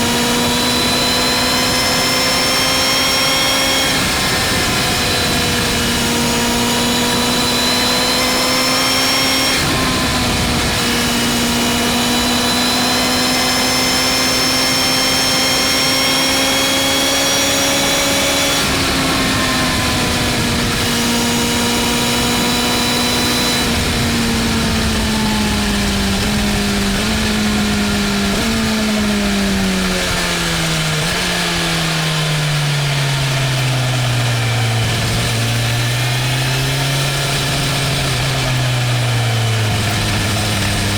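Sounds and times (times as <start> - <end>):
wind noise: 0.0 - 32.2
motorcycle engine revving: 0.0 - 40.9.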